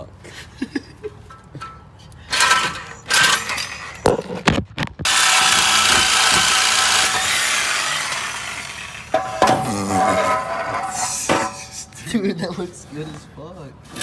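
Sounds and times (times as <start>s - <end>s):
power tool cutting metal pipe: 2.4s - 4.0s, 5.1s - 11.7s
knocks and scrapes: 9.1s - 12.0s.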